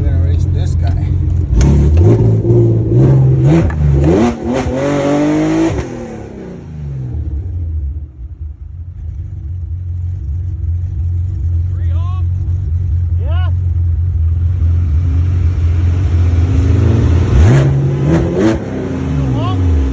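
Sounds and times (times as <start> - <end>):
diesel truck engine revving: 0.0 - 8.4, 10.6 - 19.9.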